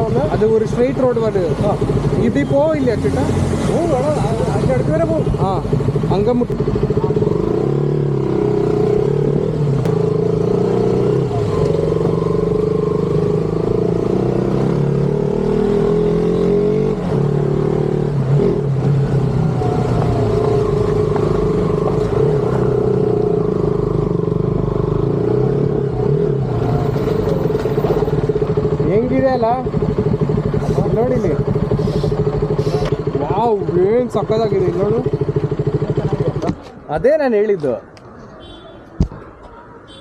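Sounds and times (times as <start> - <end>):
motorcycle engine running: 0.0 - 36.6.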